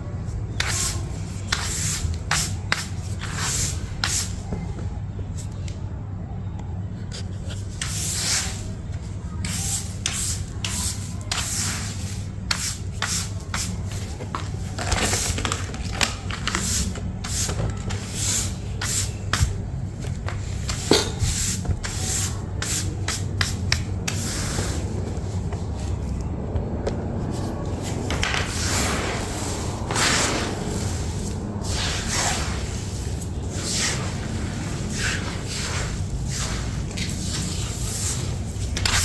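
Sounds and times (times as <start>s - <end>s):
steady low hum: 16.2s - 39.0s
rubbing strokes on a surface: 27.3s - 39.0s.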